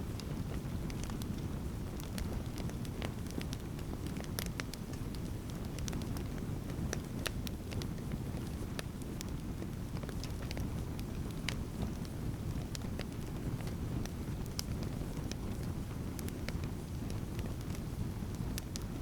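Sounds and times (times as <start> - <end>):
low rumble of flame: 0.0 - 19.0
campfire crackling and popping: 0.2 - 19.0.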